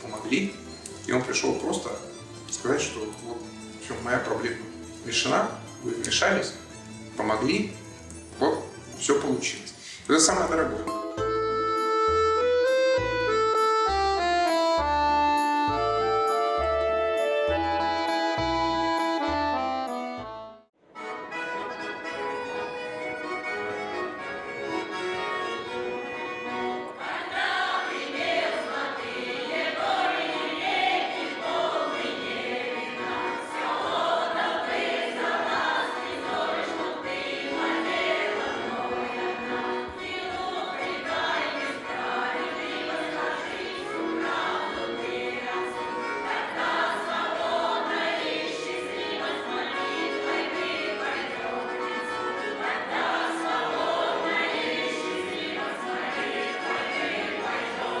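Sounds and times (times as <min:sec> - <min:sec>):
musical accompaniment: 0:00.0 - 0:58.0
choir singing: 0:23.6 - 0:58.0.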